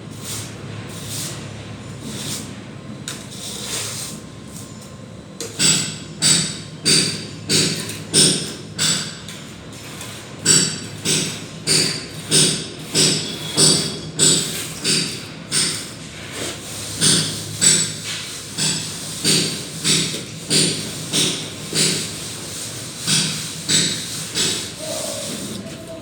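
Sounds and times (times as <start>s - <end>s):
plastering tool scraping wall: 3.1s - 4.6s, 10.9s - 25.9s.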